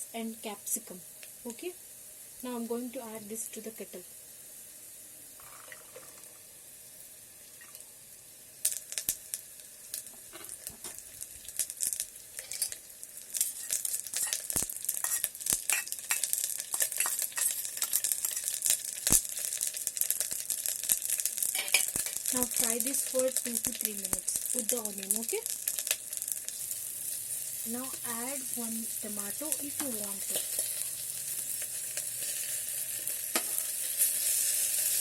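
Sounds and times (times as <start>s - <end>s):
vegetables sizzling in hot oil: 0.0s - 35.0s
spoon scraping against kettle: 12.4s - 12.8s, 13.4s - 17.6s, 21.6s - 22.2s.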